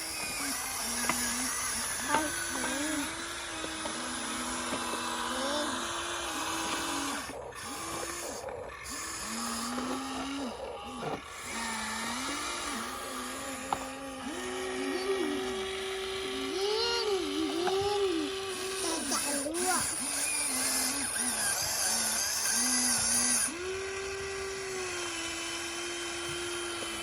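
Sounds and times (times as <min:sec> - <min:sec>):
small electric motors whining: 0:00.0 - 0:27.0.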